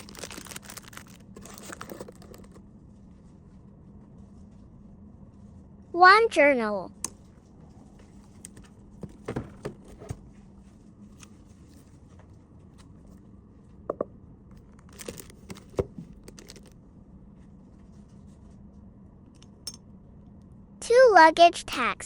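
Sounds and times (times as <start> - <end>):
packaging rustle: 0.0 - 2.6, 14.6 - 16.8.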